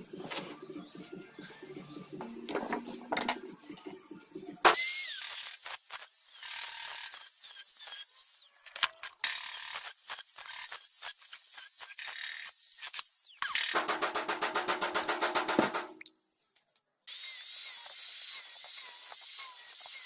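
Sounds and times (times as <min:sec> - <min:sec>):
handheld power tool whining: 0:04.7 - 0:14.0, 0:17.1 - 0:20.0.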